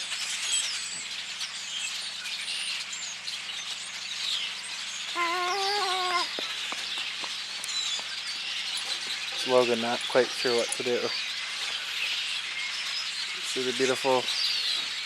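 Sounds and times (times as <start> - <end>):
flock of birds chirping: 0.0 - 15.0
wavering voice-like tone: 5.2 - 6.3.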